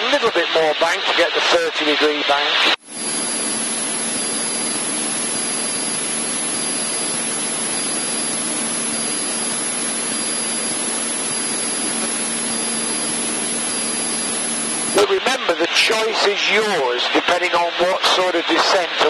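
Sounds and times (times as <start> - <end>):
aircraft engine and propeller droning: 2.8 - 16.3.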